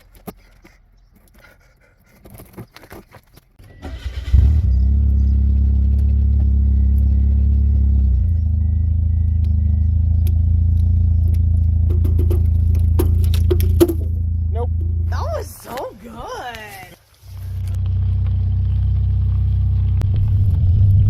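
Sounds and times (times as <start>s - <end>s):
engine running steadily: 3.6s - 15.5s, 17.3s - 21.0s.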